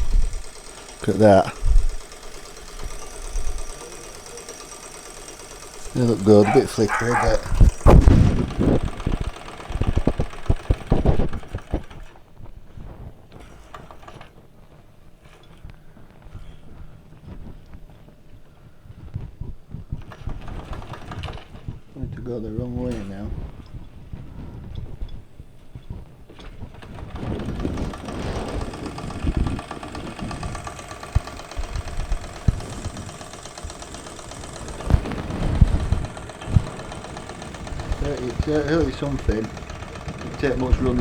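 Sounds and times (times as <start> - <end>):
model steam engine gears clattering: 0.0 - 12.2, 13.3 - 14.4, 24.8 - 41.0.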